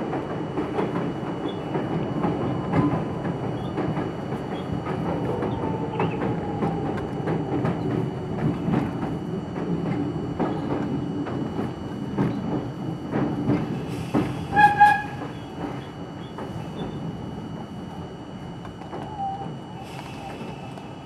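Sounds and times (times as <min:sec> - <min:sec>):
subway train running: 0:00.0 - 0:21.0
train horn toots: 0:14.5 - 0:15.3.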